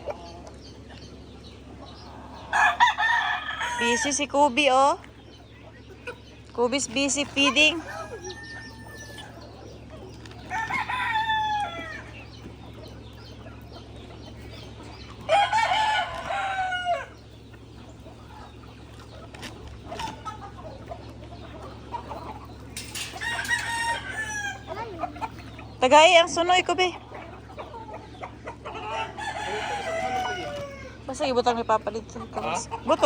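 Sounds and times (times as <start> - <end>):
chicken clucking: 0.0 - 33.0
rooster crowing: 2.4 - 4.3, 7.6 - 9.5, 10.5 - 12.2, 15.3 - 17.2, 23.0 - 24.7, 28.8 - 31.1.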